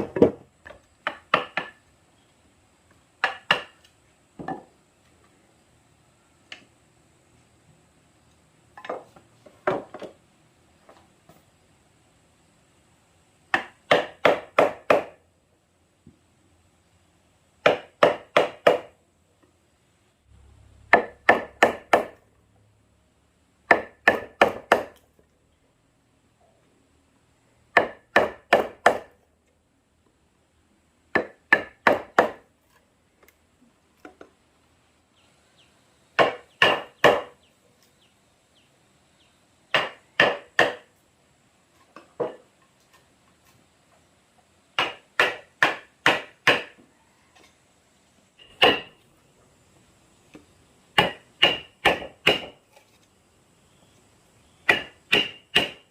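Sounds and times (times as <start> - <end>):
hand tool striking wood: 0.0 - 1.8, 3.2 - 4.7, 13.5 - 15.2, 17.6 - 18.9, 23.7 - 25.0, 27.8 - 29.2, 36.2 - 37.4, 39.7 - 40.9, 44.8 - 46.8, 48.4 - 49.0, 51.0 - 52.6, 54.6 - 55.9.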